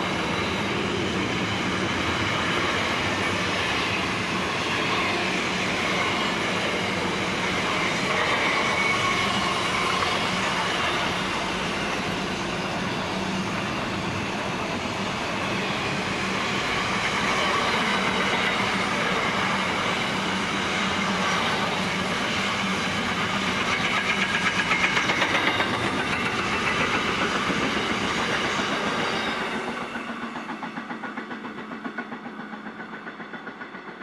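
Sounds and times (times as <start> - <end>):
freight train rolling past: 0.0 - 34.0
wheels clickety-clack on rail: 0.0 - 34.0.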